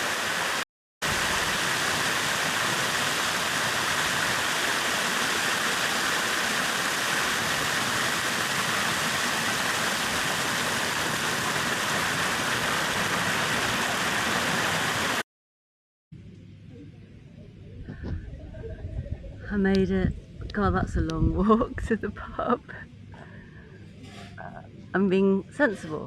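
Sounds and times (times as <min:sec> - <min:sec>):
stream water rushing: 0:00.0 - 0:15.2.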